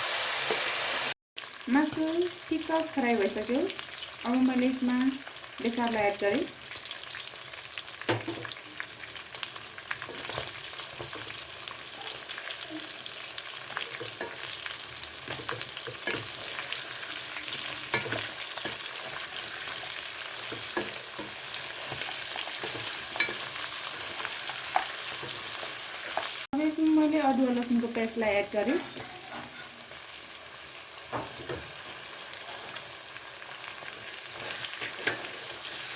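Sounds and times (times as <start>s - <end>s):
chicken sizzling in a pan: 0.0s - 35.9s
spatula scraping a pan: 13.5s - 26.4s, 28.7s - 30.0s, 33.8s - 35.9s.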